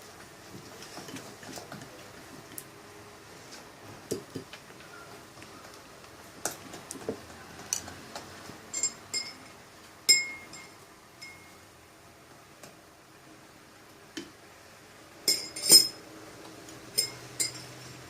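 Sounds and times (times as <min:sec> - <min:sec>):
spoon clinking against bowl: 0:17.0 - 0:17.9.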